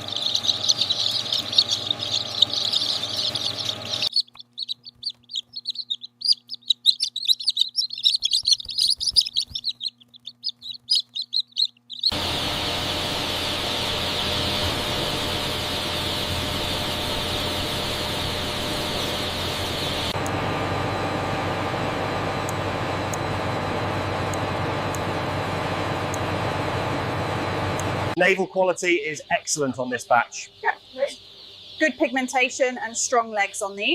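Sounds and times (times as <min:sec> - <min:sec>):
rushing machine noise: 0:00.0 - 0:04.1, 0:12.0 - 0:28.2
chicks peeping: 0:00.0 - 0:12.4, 0:28.6 - 0:33.9.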